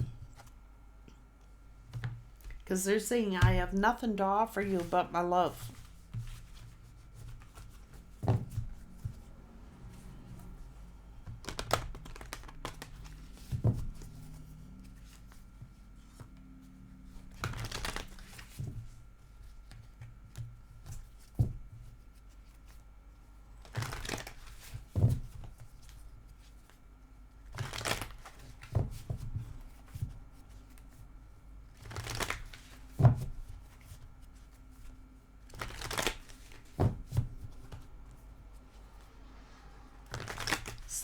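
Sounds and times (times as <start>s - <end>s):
deck of cards tapping: 11.2s - 14.1s
cards being riffle shuffled: 11.2s - 16.3s, 17.1s - 18.8s, 23.6s - 26.8s, 27.5s - 31.0s, 31.8s - 37.8s, 40.0s - 41.0s.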